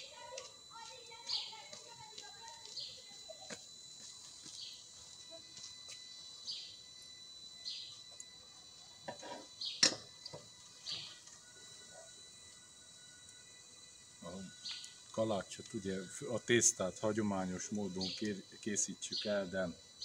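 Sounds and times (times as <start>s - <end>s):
bird chirping: 6.4s - 6.8s, 7.6s - 8.0s, 9.6s - 9.9s, 14.5s - 15.0s, 17.8s - 18.4s.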